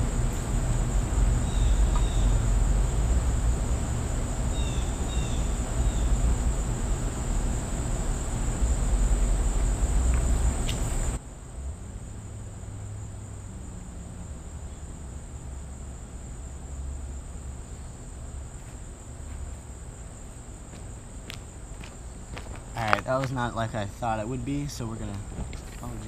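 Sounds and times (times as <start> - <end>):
high-pitched insect drone: 0.0 - 11.2
loud low rumble: 0.0 - 18.5.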